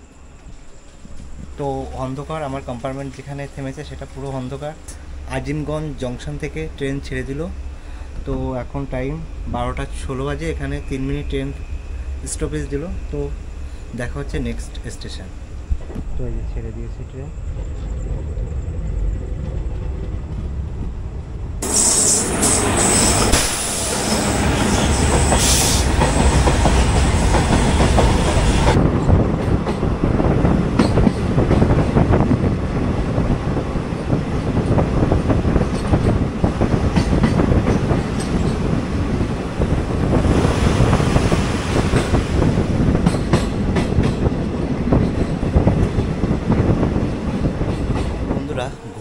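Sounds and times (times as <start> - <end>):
train rumbling: 0.0 - 49.0
high hiss: 21.6 - 27.3
wheels clacking over rail joints: 22.3 - 48.9.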